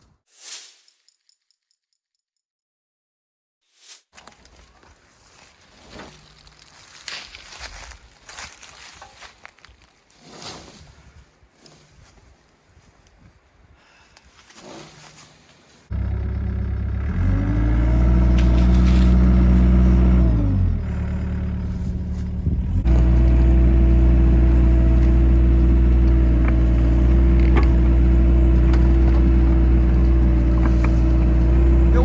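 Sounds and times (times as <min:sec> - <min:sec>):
excavator diesel engine revving: 0:15.9 - 0:32.0.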